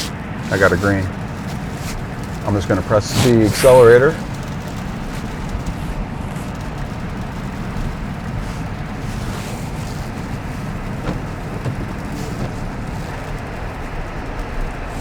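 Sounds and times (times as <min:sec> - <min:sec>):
snow crunching under tyres: 0:00.0 - 0:15.0
tyre and road noise: 0:00.0 - 0:15.0.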